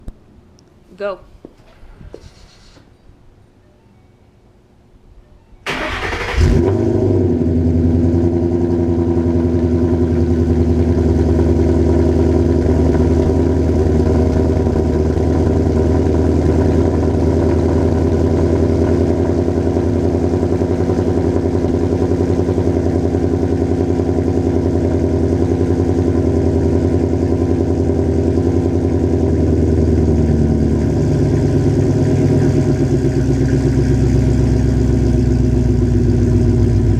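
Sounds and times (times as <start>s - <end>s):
car engine starting and idling: 5.6s - 36.9s.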